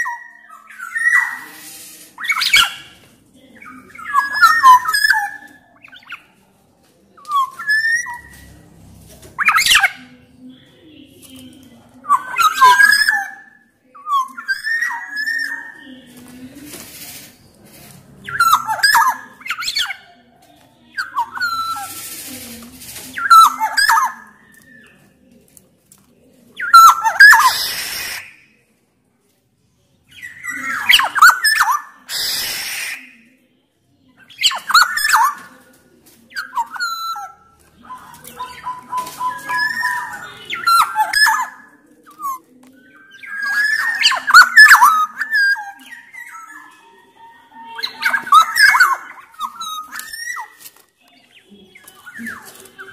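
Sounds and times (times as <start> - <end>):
bird harsh rasping calls: 0.0 - 6.4, 20.9 - 25.0, 26.6 - 28.4, 30.1 - 33.2, 34.2 - 35.7, 36.3 - 52.9
bird fluty whistled song: 3.6 - 6.3, 7.2 - 8.5, 12.0 - 16.2, 18.2 - 20.1, 21.0 - 22.3, 23.1 - 25.0, 26.6 - 28.5, 30.1 - 33.2, 34.2 - 35.5, 36.3 - 52.9.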